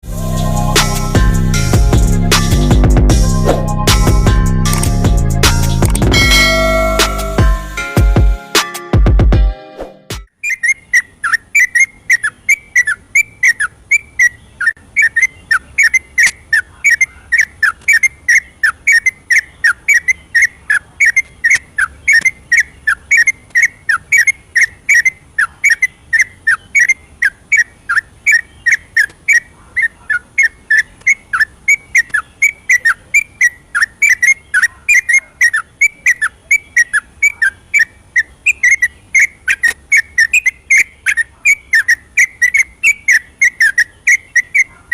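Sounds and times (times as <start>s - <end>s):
bulbul singing whistled notes: 10.4s - 29.5s, 30.4s - 44.8s.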